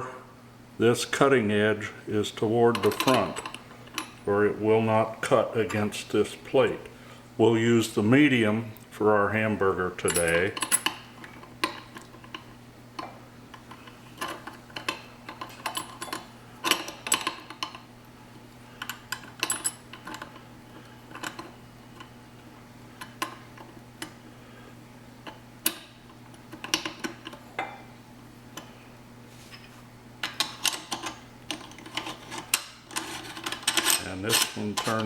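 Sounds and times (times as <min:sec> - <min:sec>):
metal parts clicking and clinking: 0:02.7 - 0:04.2, 0:10.0 - 0:12.4, 0:13.0 - 0:17.8, 0:18.8 - 0:20.4, 0:29.5 - 0:35.0.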